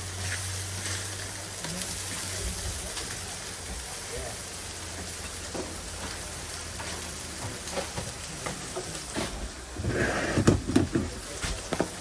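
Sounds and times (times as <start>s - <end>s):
patties sizzling on griddle: 0.0s - 12.0s
kitchen utensils knocking and scraping: 9.9s - 11.9s.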